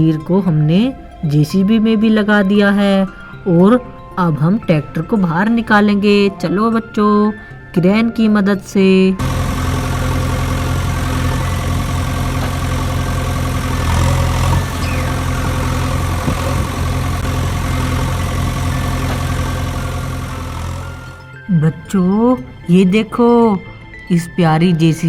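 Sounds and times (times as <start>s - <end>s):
heavy engine running under load: 9.2s - 21.4s.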